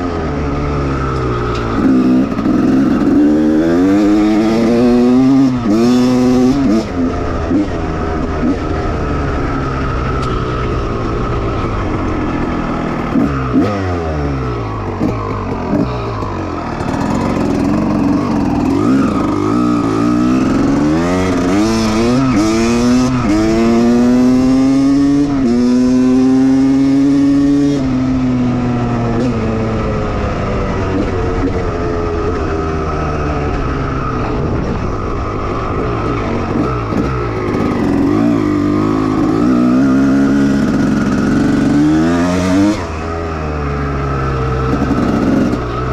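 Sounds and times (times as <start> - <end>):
motocross engine revving: 0.6 - 7.8, 11.0 - 27.9, 35.7 - 45.9.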